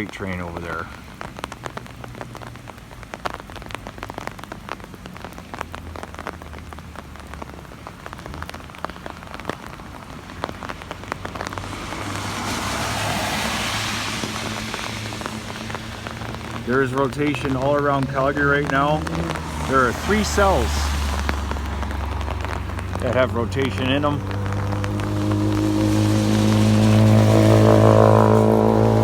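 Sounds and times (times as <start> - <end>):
rain drops ticking on hard surface: 0.0 - 29.0.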